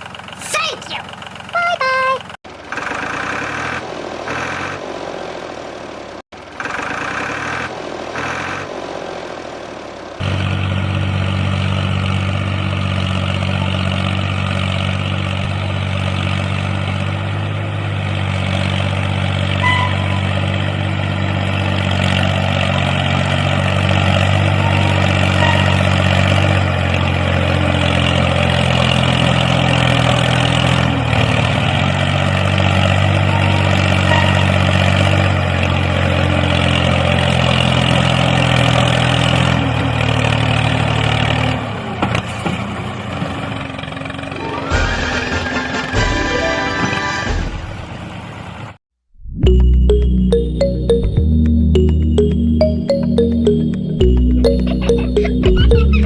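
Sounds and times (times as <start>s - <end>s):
engine running steadily: 0.0s - 38.2s.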